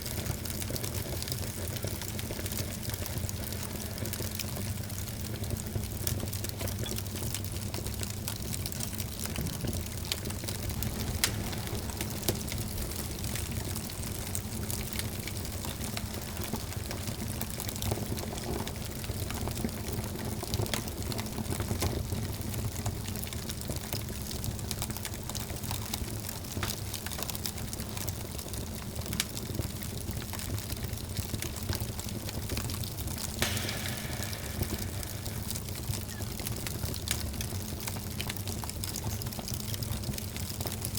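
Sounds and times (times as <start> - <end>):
wood fire crackling: 0.0 - 40.9
flame rushing: 9.4 - 17.0, 33.4 - 37.1
high hiss: 33.4 - 36.8.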